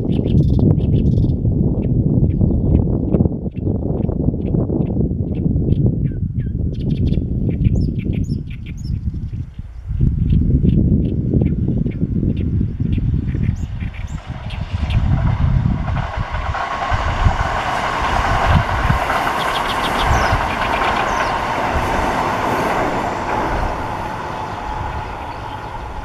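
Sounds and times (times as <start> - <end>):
wind buffeting microphone: 0.0 - 26.0
electric train passing: 11.2 - 26.0.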